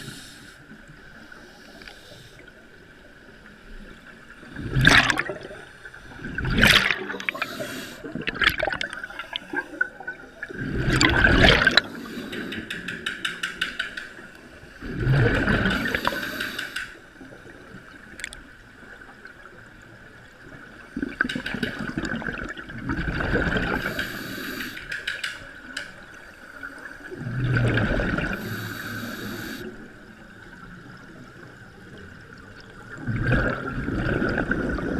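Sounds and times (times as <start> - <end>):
water splashing against a boat: 4.6 - 14.0.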